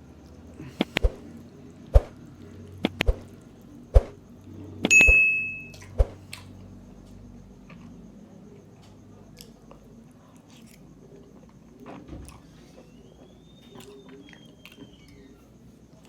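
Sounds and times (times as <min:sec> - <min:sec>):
ringing clink: 0:04.9 - 0:05.9.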